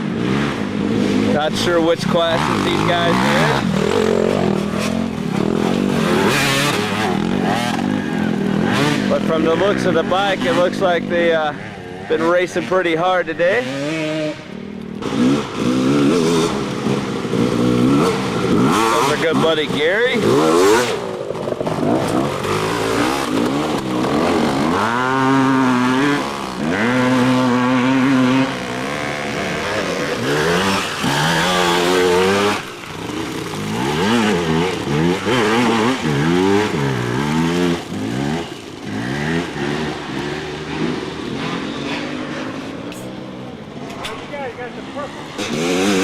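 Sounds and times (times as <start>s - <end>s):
dirt bike engines revving: 0.0s - 46.0s.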